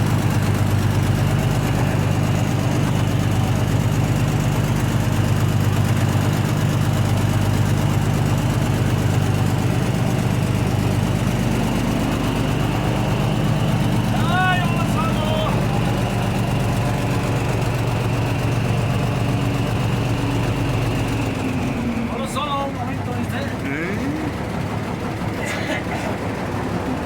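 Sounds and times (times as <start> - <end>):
low fan hum: 7.2 - 17.9, 22.1 - 27.0.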